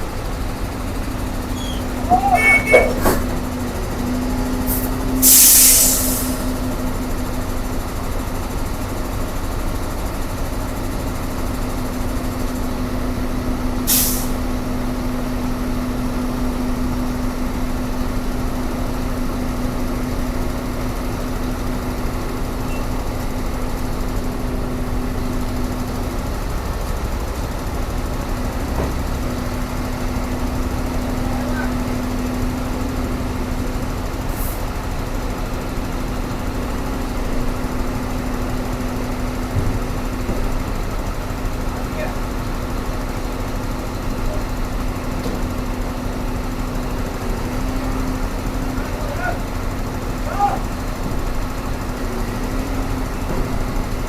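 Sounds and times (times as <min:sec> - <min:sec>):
heavy diesel engine running: 0:00.0 - 0:54.0
air release hisses: 0:04.7 - 0:06.5.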